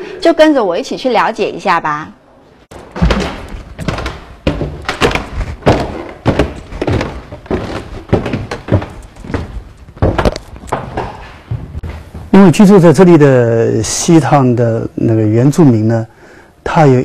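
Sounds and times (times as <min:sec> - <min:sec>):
dull thuds: 0:02.7 - 0:12.3.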